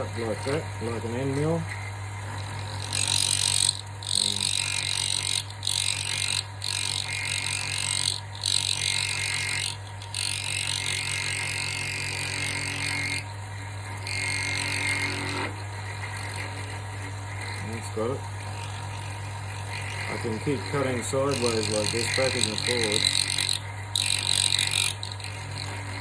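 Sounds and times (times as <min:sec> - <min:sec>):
hissing wood cutting: 0:00.0 - 0:13.3, 0:14.0 - 0:26.0
lathe motor hum: 0:00.0 - 0:26.0.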